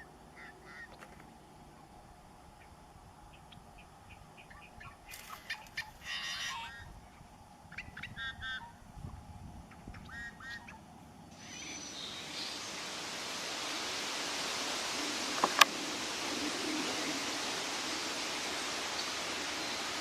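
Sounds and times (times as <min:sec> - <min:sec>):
birds honking calls: 0:11.4 - 0:20.0
steady rushing noise: 0:11.4 - 0:20.0.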